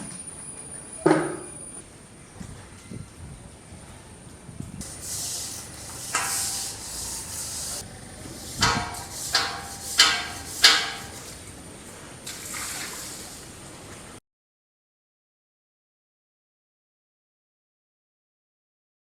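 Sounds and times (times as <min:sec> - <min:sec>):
ringing metallic clanks: 0:04.8 - 0:07.8, 0:08.4 - 0:11.3.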